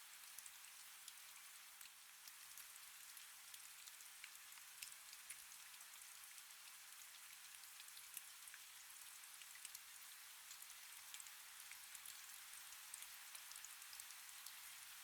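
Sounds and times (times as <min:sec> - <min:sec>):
faint steady rain: 0:00.0 - 0:15.0.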